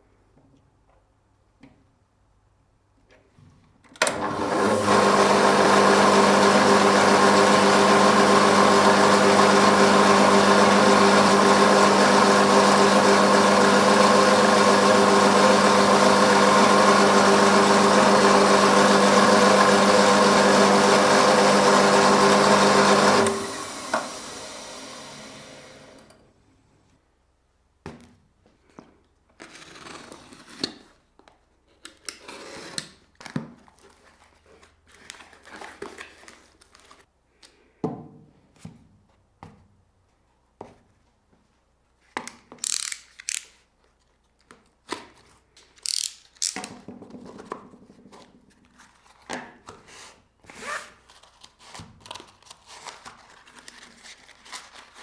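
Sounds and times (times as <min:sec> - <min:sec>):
electric machine tool running: 0:04.0 - 0:26.2.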